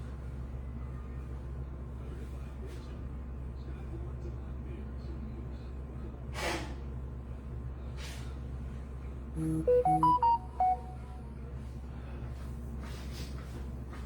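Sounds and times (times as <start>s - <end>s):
rising electronic chime: 9.4s - 11.2s.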